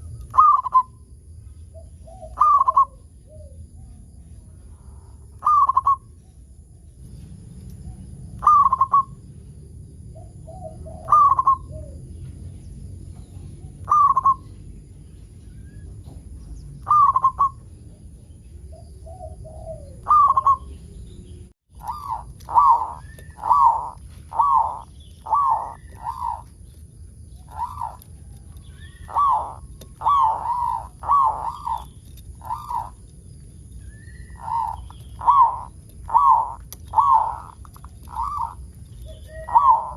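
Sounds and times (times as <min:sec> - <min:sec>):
dove cooing: 0:00.0 - 0:01.0, 0:01.7 - 0:03.7, 0:05.4 - 0:06.1, 0:08.3 - 0:09.2, 0:10.2 - 0:12.3, 0:13.5 - 0:14.5, 0:16.8 - 0:17.6, 0:18.7 - 0:21.0, 0:21.8 - 0:33.1, 0:33.8 - 0:39.9.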